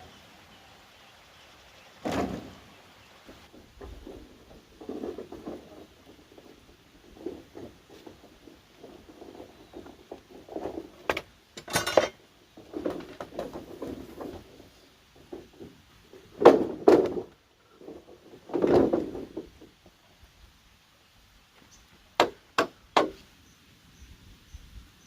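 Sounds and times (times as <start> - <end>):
bamboo knocks and clatter: 2.0 - 20.0, 21.6 - 23.3
loud sharp strikes on bamboo: 22.2 - 23.2.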